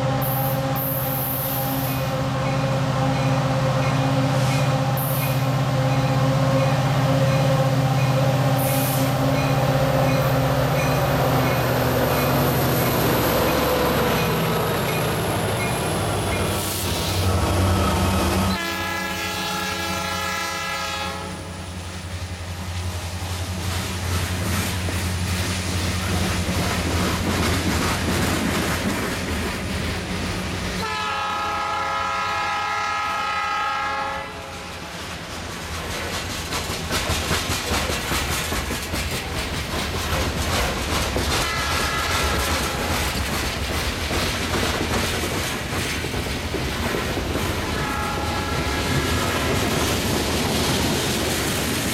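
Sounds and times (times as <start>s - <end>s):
freight train passing: 0.0s - 51.9s
wheels clacking over rails: 8.0s - 18.6s, 23.6s - 30.7s, 35.0s - 51.9s
locomotive horn blasts: 18.5s - 21.6s, 30.8s - 34.7s, 41.4s - 42.8s, 47.7s - 48.9s.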